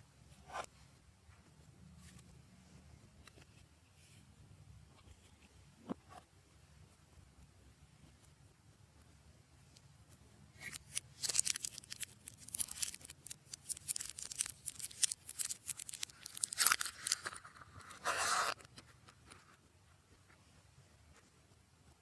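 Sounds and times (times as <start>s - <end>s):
slime squelch: 10.5s - 17.8s
slime crackling and popping: 10.6s - 17.4s.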